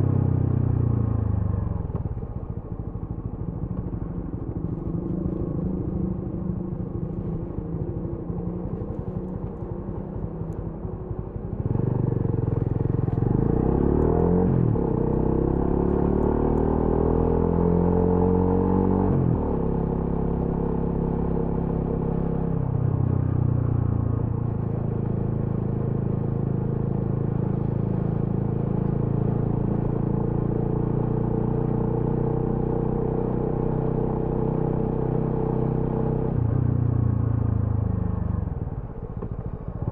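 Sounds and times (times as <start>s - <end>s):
motorcycle engine revving: 11.5s - 21.6s.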